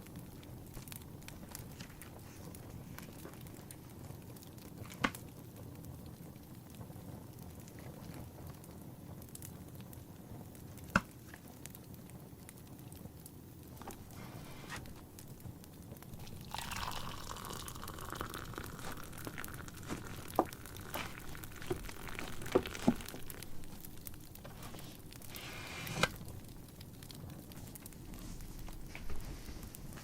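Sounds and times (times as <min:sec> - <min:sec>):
wood fire crackling: 0:00.0 - 0:30.0
tea pouring into cup: 0:16.0 - 0:24.1.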